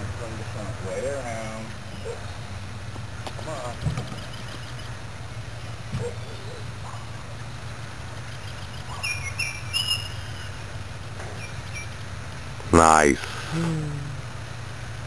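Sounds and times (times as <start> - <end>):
bird chirping: 3.3 - 5.0, 8.1 - 12.2
steady low hum: 10.4 - 15.0.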